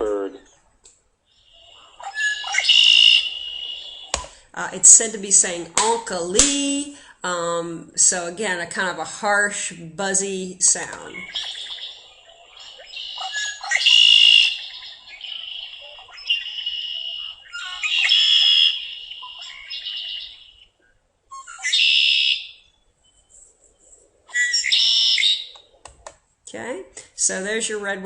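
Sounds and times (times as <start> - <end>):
bird chips and calls: 1.4 - 4.2, 11.2 - 20.7, 21.3 - 23.4, 24.3 - 25.8
blackbird buzzy song phrases: 1.4 - 6.9, 10.0 - 20.7.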